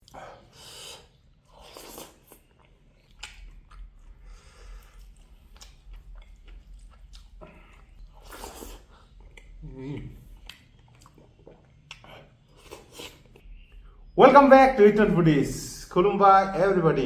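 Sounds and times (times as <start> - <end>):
person chewing crunchy food: 0.0 - 13.6.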